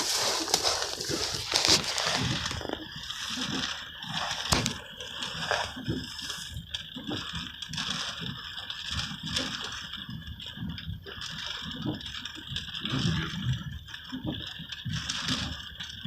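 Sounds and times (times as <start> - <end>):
rain on a truck roof: 0.0 - 16.0.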